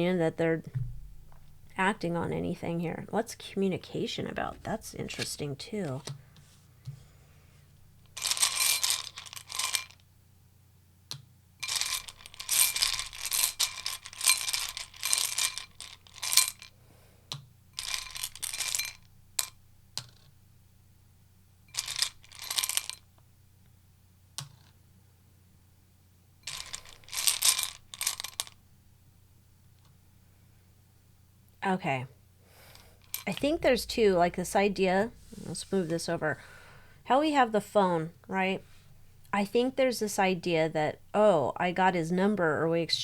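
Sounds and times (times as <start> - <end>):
cards being shuffled: 4.3 - 7.0.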